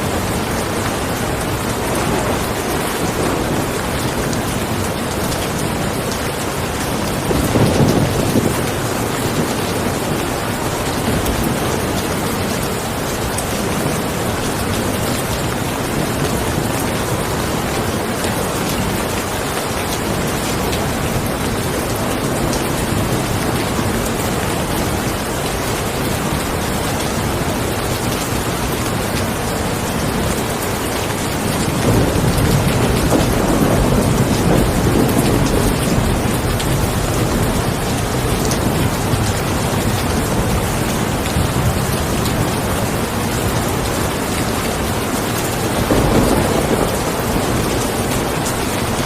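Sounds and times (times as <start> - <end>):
heavy rainfall: 0.0 - 49.0
low rumble of thunder: 1.1 - 18.3, 31.4 - 43.6, 45.4 - 49.0.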